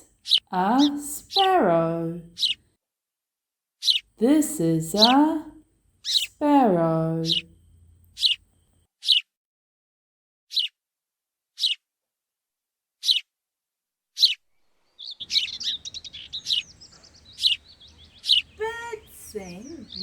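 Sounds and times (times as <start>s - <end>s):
birds chirping quickly: 0.0s - 2.6s, 3.8s - 4.1s, 6.0s - 6.4s, 7.2s - 7.5s, 8.1s - 8.4s, 10.5s - 10.7s, 14.2s - 20.0s
outdoor background noise: 0.0s - 2.6s, 3.9s - 8.9s, 14.5s - 20.0s
sparrow chirping: 0.0s - 2.6s, 3.8s - 8.4s, 9.0s - 9.2s, 10.5s - 10.7s, 11.6s - 11.8s, 13.0s - 13.2s, 14.2s - 20.0s.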